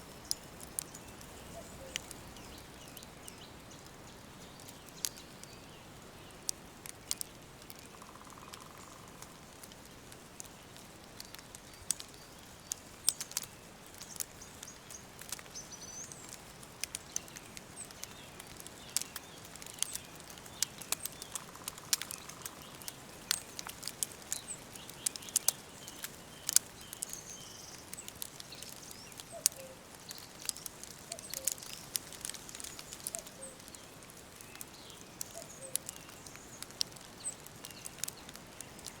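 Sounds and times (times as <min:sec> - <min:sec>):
small birds chirping: 0:00.0 - 0:39.0
wood fire crackling and popping: 0:00.0 - 0:39.0.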